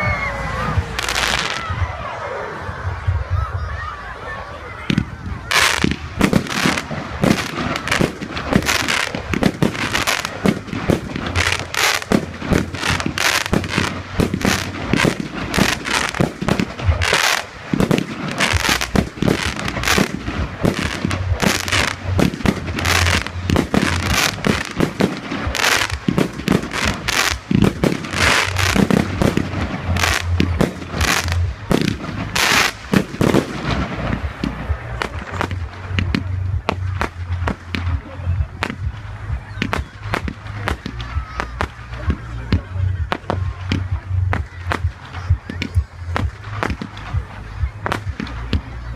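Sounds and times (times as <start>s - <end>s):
fireworks bangs and crackles: 0.0s - 3.9s, 4.6s - 48.9s.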